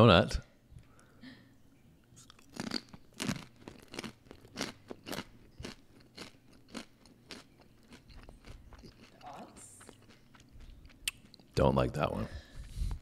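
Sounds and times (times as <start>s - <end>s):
crunchy snack chewing: 2.2s - 11.6s.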